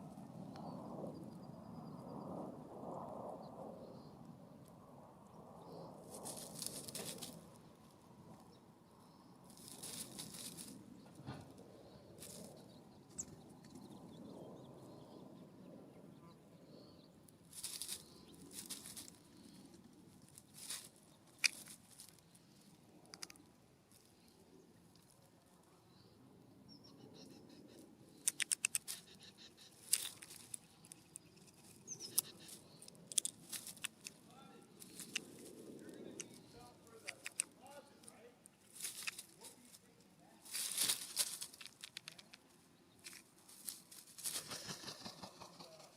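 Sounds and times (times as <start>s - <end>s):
small birds' wings flapping: 6.0s - 7.6s, 9.5s - 11.4s, 43.0s - 45.9s
sharp clicks: 23.1s - 23.4s, 28.2s - 29.2s, 29.8s - 34.2s, 36.1s - 37.6s, 41.4s - 42.4s.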